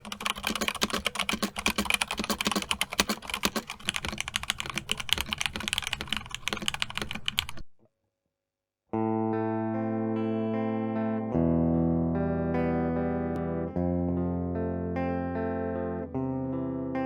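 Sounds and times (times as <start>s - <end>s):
mechanical keyboard typing: 0.0s - 7.7s.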